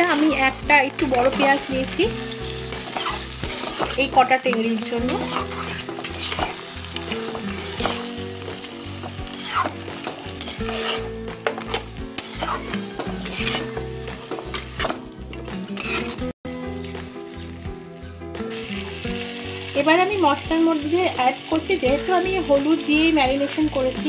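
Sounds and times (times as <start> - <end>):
metal spatula scraping pan: 0.0 - 16.3
low background music: 0.0 - 24.0
meat sizzling in oil: 0.0 - 24.0.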